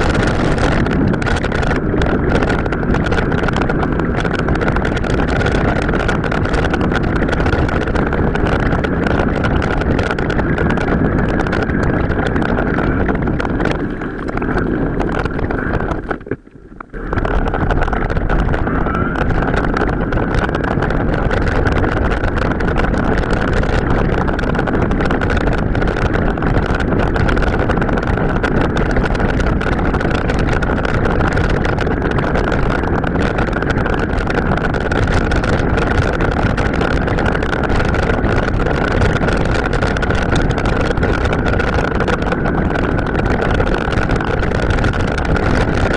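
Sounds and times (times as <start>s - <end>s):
mountain bike riding rumble: 0.0s - 45.9s
wind buffeting microphone: 0.0s - 45.9s
steady high whine: 6.1s - 21.8s.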